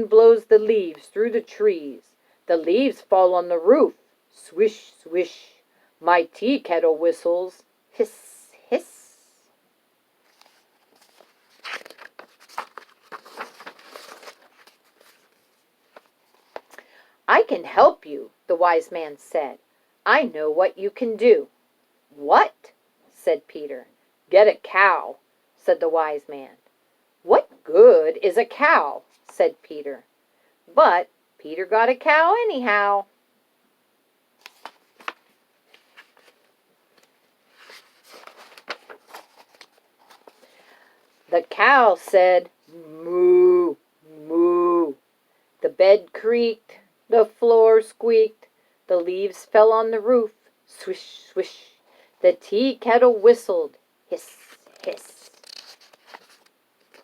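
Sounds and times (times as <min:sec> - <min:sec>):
book pages turning: 0:10.2 - 0:16.8, 0:34.4 - 0:41.3, 0:54.4 - 0:57.0
soft rustle: 0:10.2 - 0:16.8, 0:34.4 - 0:42.8, 0:54.2 - 0:57.0.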